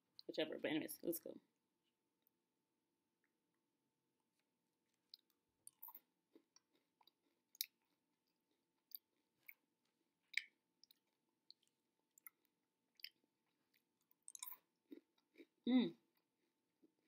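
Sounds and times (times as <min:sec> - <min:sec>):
candy crunching while chewed: 0:10.3 - 0:15.6.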